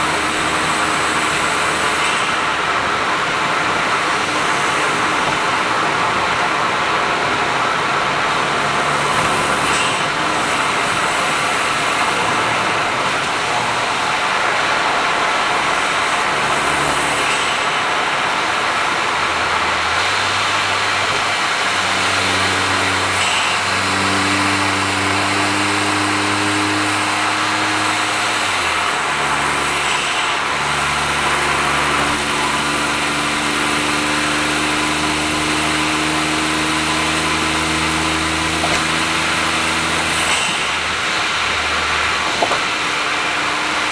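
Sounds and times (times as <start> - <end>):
road and tyre noise: 0.0 - 43.9
car engine running: 26.8 - 43.9.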